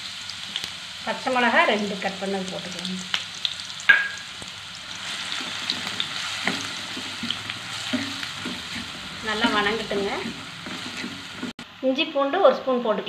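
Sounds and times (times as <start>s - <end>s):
onion and chillies sizzling in oil: 0.0s - 13.0s
wooden spatula scraping pan: 5.2s - 11.6s.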